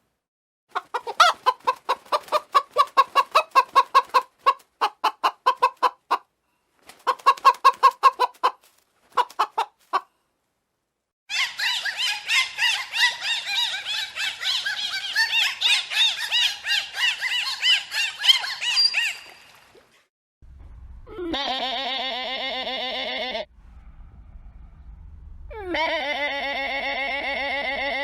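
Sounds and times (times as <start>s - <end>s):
low rumble: 20.4s - 21.6s, 23.5s - 27.4s
wavering bleat: 21.1s - 23.5s, 25.6s - 28.0s.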